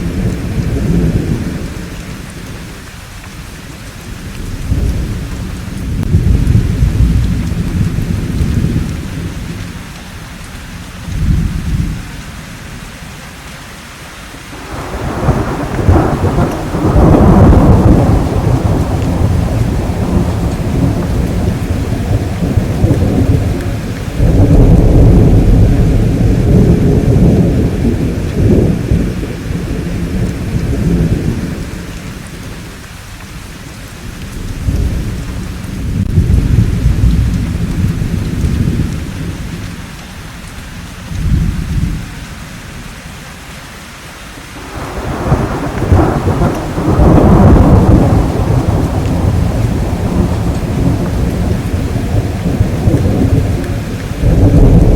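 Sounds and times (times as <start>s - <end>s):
steady rain: 0.0s - 54.9s
rolling thunder: 4.0s - 9.8s, 14.6s - 32.7s, 34.0s - 39.8s, 41.0s - 42.1s, 44.6s - 54.9s.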